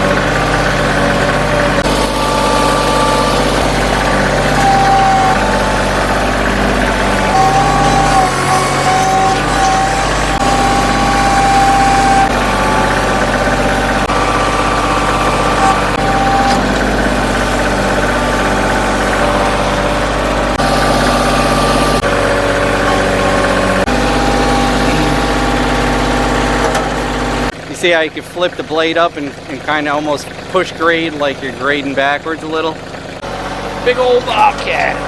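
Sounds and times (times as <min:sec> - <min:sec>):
high whining tones: 0:00.0 - 0:27.5
loader engine running: 0:00.0 - 0:35.0.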